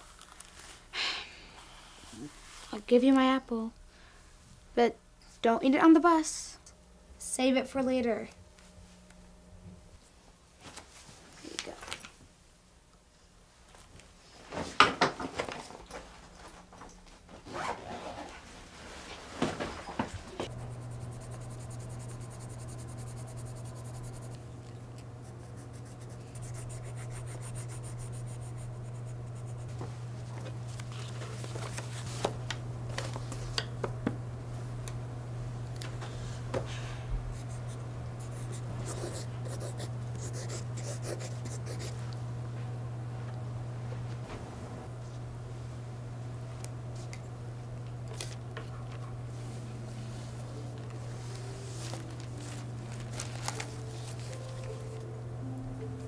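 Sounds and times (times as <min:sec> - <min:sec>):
rustling handling noises: 0:00.0 - 0:00.8, 0:29.4 - 0:33.6, 0:48.1 - 0:55.1
steady low hum: 0:19.4 - 0:56.0.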